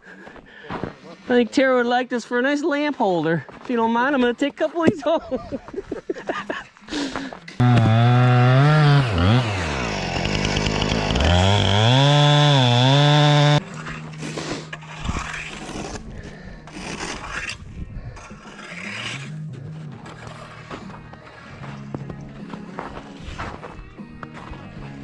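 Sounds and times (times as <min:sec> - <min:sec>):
chainsaw running at high revs: 0:07.6 - 0:13.6.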